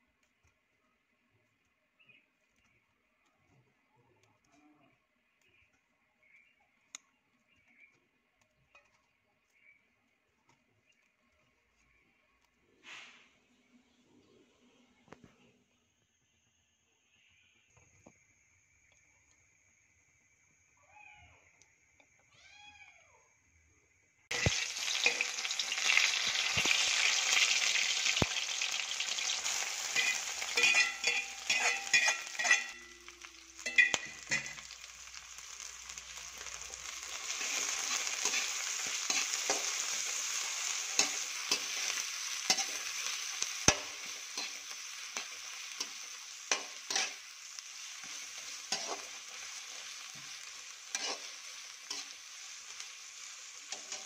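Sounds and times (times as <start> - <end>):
vegetables sizzling in hot oil: 24.3 - 54.0
metal spatula scraping a pan: 28.8 - 34.8, 36.4 - 52.6, 53.7 - 54.0.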